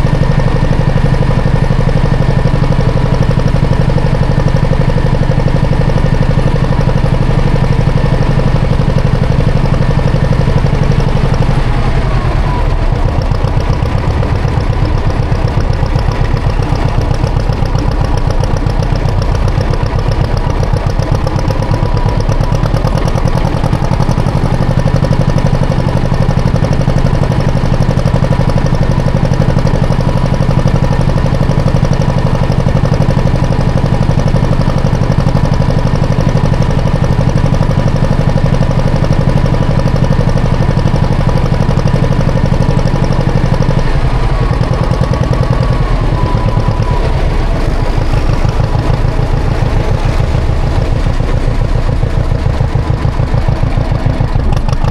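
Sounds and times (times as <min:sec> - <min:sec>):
tractor engine running: 0:00.0 - 0:54.9.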